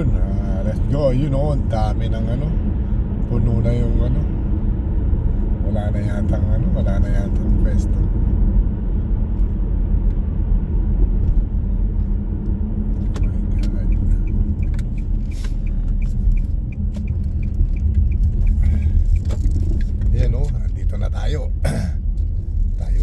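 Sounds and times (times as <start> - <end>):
car engine and road rumble: 0.0 - 23.0
light regular ticking: 12.9 - 23.0.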